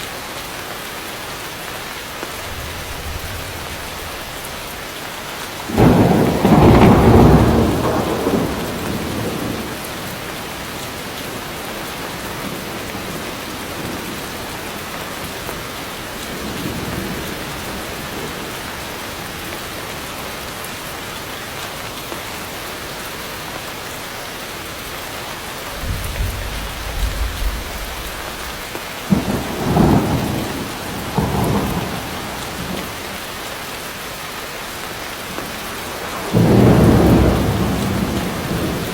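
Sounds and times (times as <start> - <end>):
heavy rain: 0.0 - 38.9
thunder rumbling and cracking: 2.2 - 14.7, 25.6 - 33.2, 36.1 - 38.9.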